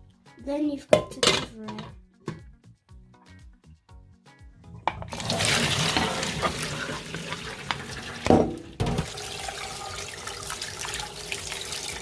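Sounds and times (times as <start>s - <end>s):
tap water running: 4.8s - 12.0s
knock: 8.3s - 9.1s.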